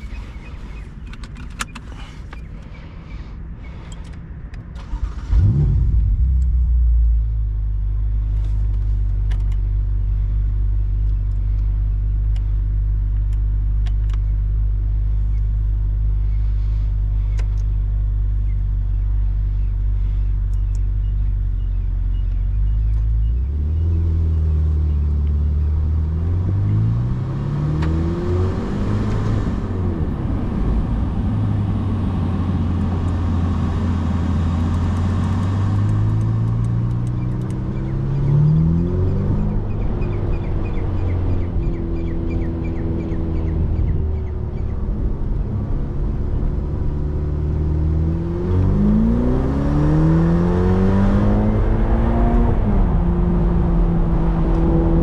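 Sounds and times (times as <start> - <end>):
car pulling away revving: 4.8 - 7.1, 23.2 - 55.0.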